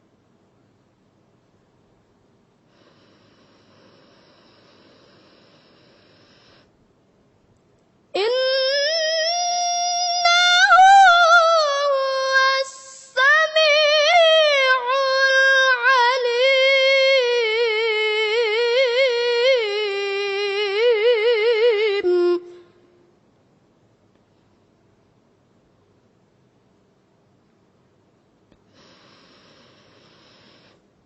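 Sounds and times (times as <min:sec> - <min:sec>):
person reciting melodically: 0:08.2 - 0:22.7.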